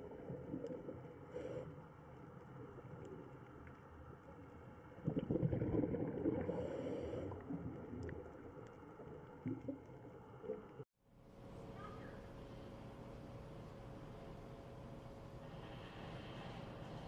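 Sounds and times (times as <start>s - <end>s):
underwater gurgling: 0.0s - 10.8s.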